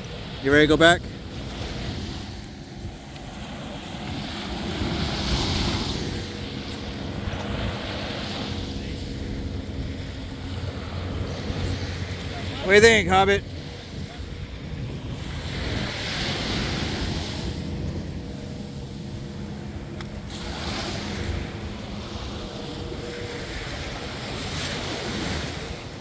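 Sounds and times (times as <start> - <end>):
ocean surf breaking on beach: 0.0 - 26.0
wind rumble on microphone: 0.0 - 26.0.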